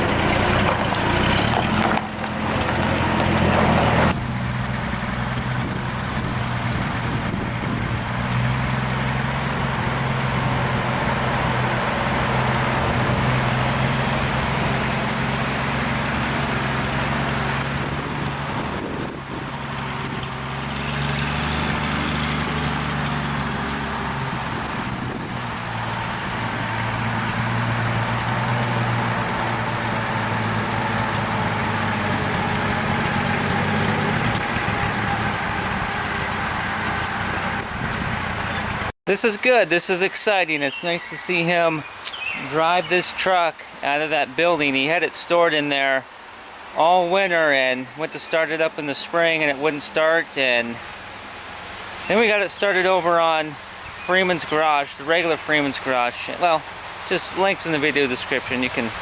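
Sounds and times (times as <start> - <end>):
truck engine running at low speed: 0.0 - 46.8.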